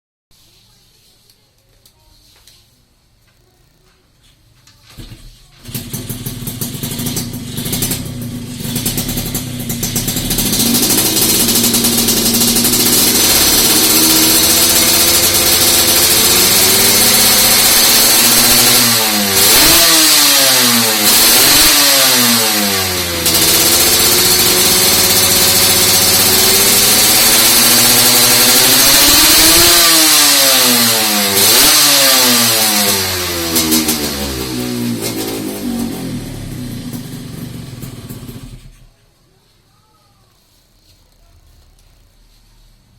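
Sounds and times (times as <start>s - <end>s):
motorcycle engine revving: 5.0s - 38.9s
motorcycle engine idling: 5.6s - 29.9s, 33.2s - 38.9s.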